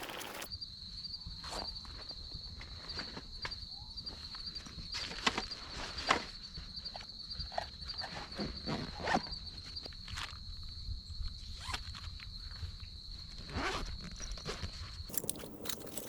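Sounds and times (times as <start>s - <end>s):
camp gear rustling: 0.0s - 0.5s, 15.1s - 16.0s
insect trilling: 0.0s - 0.5s, 15.1s - 16.0s.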